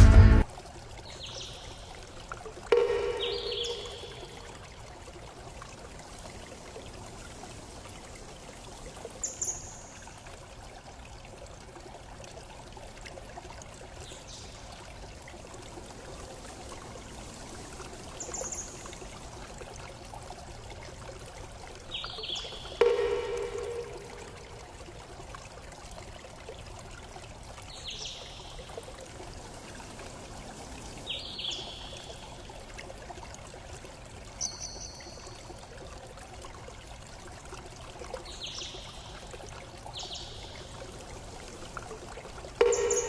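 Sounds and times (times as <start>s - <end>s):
running water: 0.0s - 43.0s
bird chirps: 2.8s - 4.2s, 42.6s - 43.0s.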